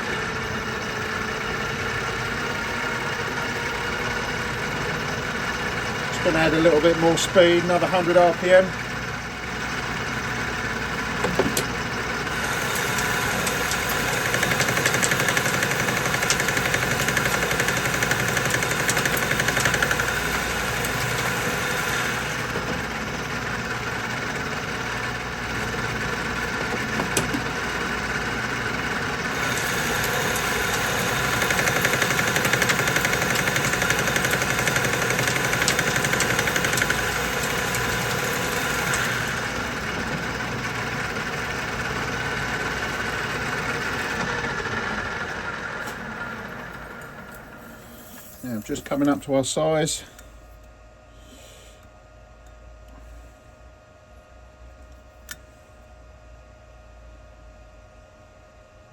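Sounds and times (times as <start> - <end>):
lathe machine hum: 0.0 - 50.1.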